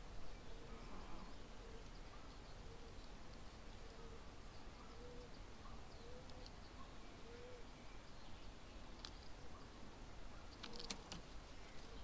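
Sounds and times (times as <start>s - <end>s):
distant bird cooing: 0.4s - 3.0s, 3.8s - 7.8s, 10.3s - 12.0s.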